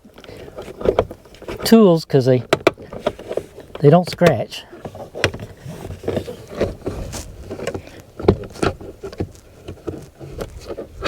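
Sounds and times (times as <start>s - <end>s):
plastic tool prying door panel: 2.5s - 10.9s.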